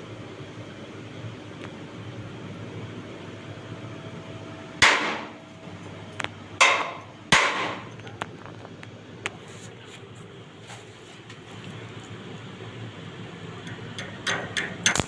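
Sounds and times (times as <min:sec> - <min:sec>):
hammer striking steel: 0:04.8 - 0:05.4, 0:06.6 - 0:07.9.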